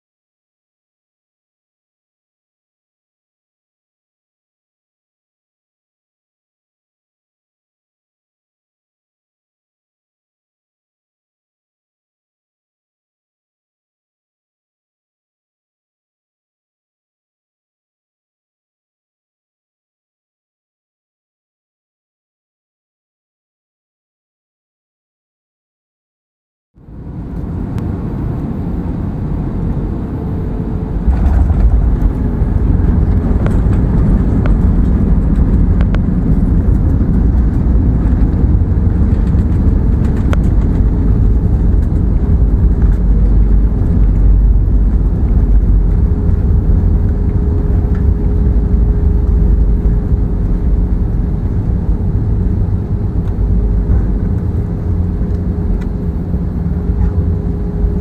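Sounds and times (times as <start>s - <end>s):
vehicle rumbling: 26.8s - 58.0s.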